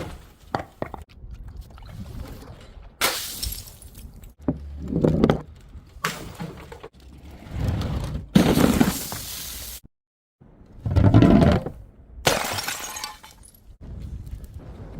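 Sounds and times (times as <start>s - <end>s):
glass bottles smashing: 12.3s - 13.6s.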